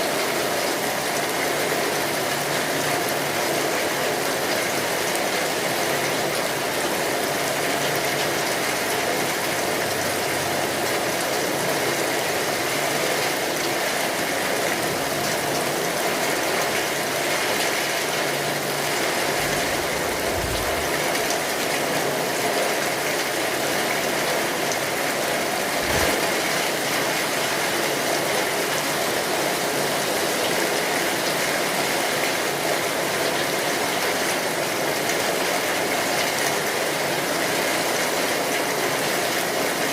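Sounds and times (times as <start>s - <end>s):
steady rainfall: 0.0s - 39.9s
low rumbles: 18.8s - 22.0s.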